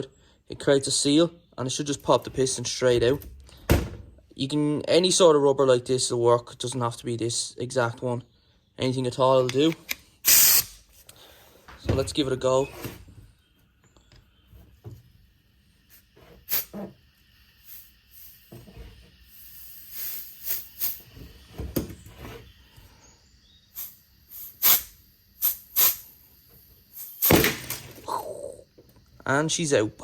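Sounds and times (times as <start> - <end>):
compressed air hissing: 10.0 - 11.7, 14.3 - 29.2.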